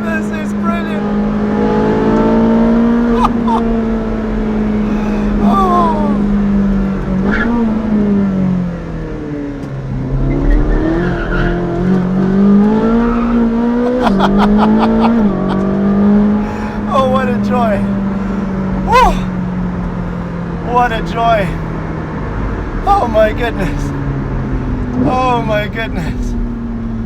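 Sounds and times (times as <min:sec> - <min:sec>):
sports car engine revving: 0:00.0 - 0:04.9, 0:06.2 - 0:22.8.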